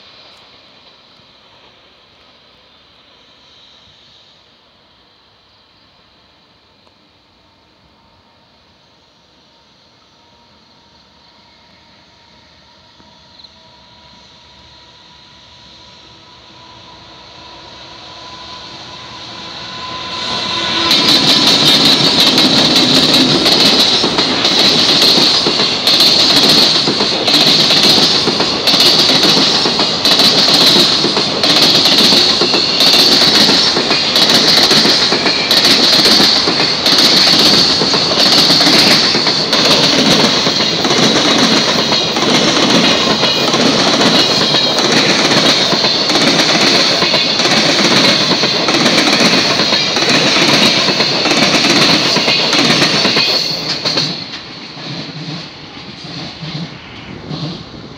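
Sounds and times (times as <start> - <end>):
electric locomotive passing: 0.0 - 57.9
steady high-pitched tone: 6.4 - 52.5.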